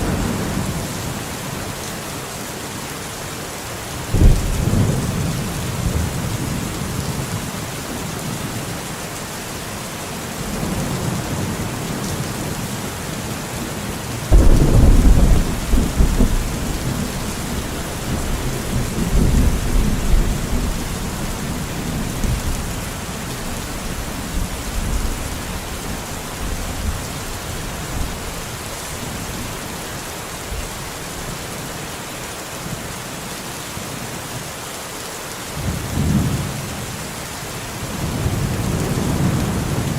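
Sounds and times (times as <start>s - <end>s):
rolling thunder: 0.0s - 1.2s, 4.0s - 7.5s, 14.3s - 28.3s, 37.9s - 39.9s
steady rain in a forest: 0.0s - 39.9s.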